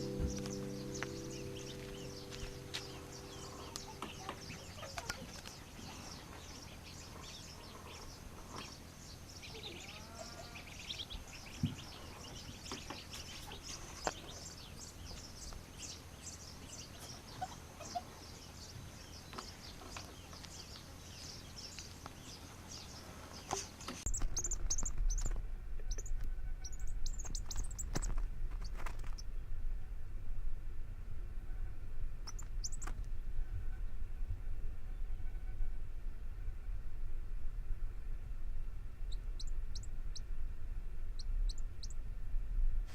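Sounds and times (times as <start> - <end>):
low hum: 0.0 - 8.4, 24.1 - 42.9
steady background hiss: 0.0 - 27.2.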